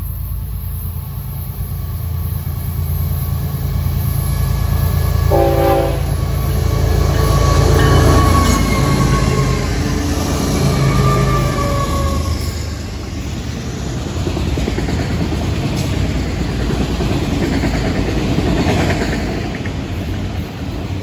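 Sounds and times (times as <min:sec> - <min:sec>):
freight train rumbling: 0:00.0 - 0:21.0
train horn blast: 0:05.1 - 0:12.3.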